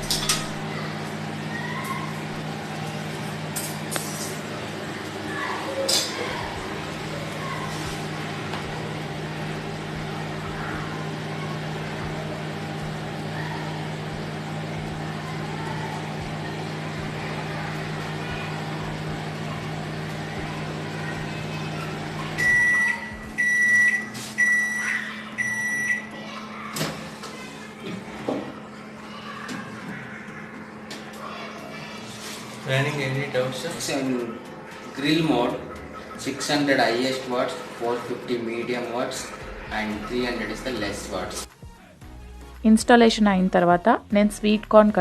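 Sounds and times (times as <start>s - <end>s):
microwave oven humming: 0.0s - 45.0s
microwave beeps: 22.2s - 26.2s.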